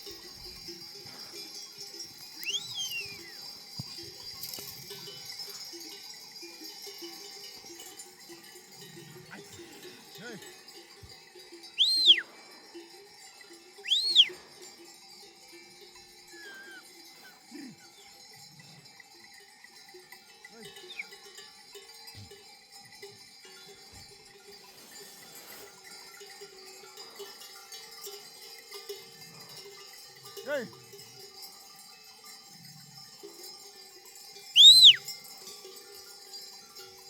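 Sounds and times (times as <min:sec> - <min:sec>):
sheep bells clanking: 0:00.0 - 0:37.0
loud short whistles: 0:02.4 - 0:03.4, 0:11.8 - 0:12.3, 0:13.8 - 0:14.4, 0:34.6 - 0:35.0.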